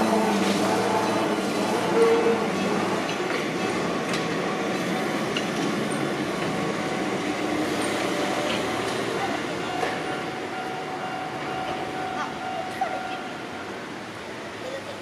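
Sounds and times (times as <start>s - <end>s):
electric train running on rails: 0.0s - 15.0s.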